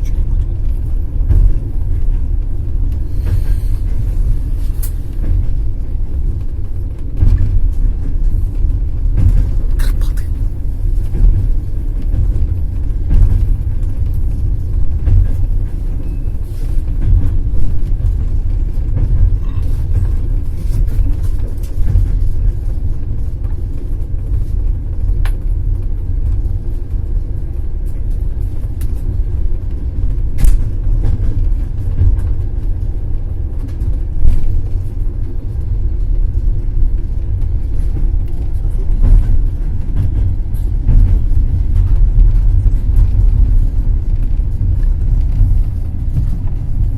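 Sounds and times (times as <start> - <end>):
train wheels rumbling on rails: 0.0 - 46.9.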